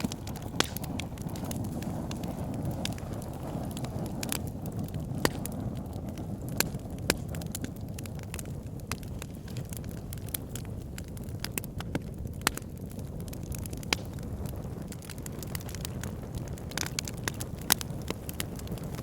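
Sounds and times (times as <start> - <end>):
campfire flames rushing: 0.0 - 19.0
fire crackling and popping: 0.0 - 19.0.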